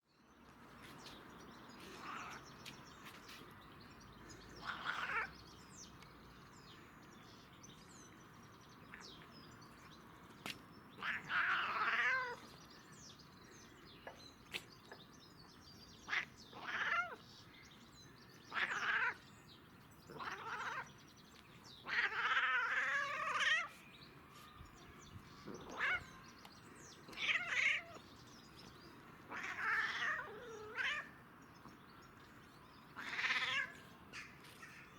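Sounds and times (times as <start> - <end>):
cat meowing: 29.3 - 31.1, 33.0 - 33.7.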